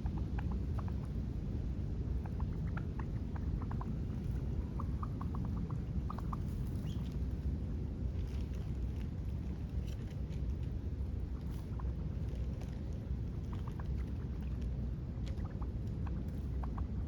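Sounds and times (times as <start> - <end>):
small birds chirping: 2.3 - 7.2.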